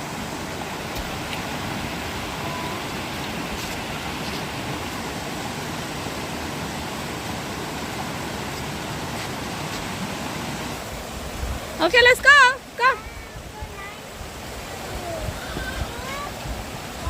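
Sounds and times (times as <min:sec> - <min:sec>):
stream and waterfall rushing: 0:00.0 - 0:17.0.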